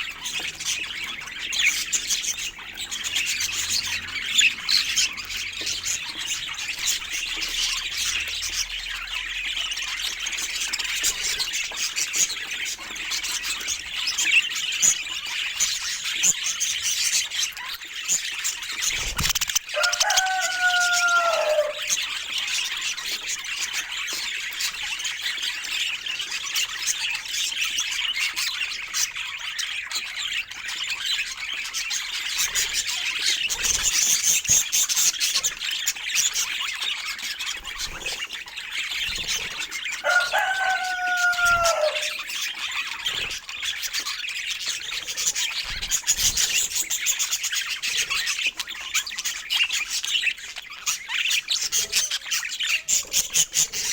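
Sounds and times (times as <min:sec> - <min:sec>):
budgerigars chirping and warbling: 0:00.0 - 0:53.9
low falling bird call: 0:40.0 - 0:42.2.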